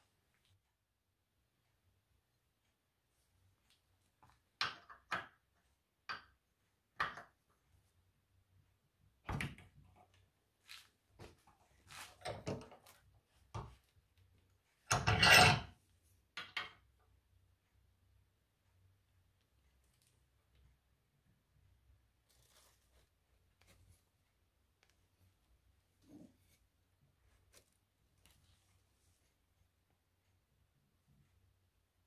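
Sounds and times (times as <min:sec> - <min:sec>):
metal tools clattering: 0:14.9 - 0:15.7.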